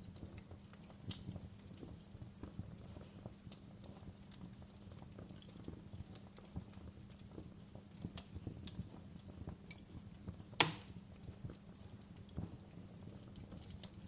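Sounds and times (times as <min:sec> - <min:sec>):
wood fire crackling: 0:00.0 - 0:14.0
loud pop from fire: 0:10.6 - 0:11.0.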